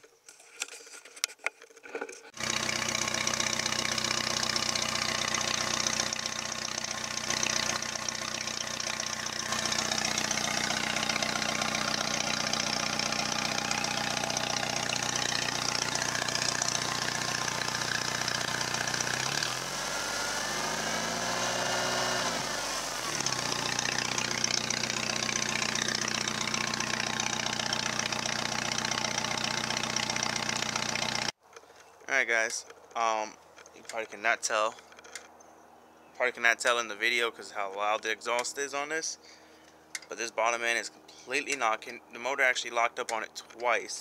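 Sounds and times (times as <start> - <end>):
pickup engine idling and revving: 2.4 - 31.4.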